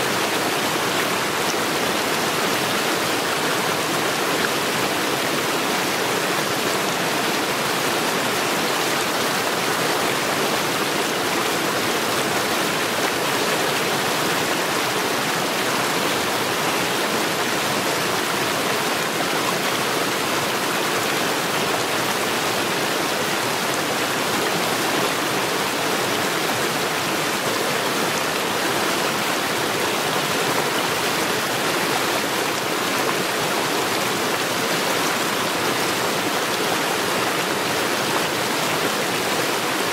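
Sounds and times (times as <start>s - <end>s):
stream rushing over stones: 0.0s - 39.9s.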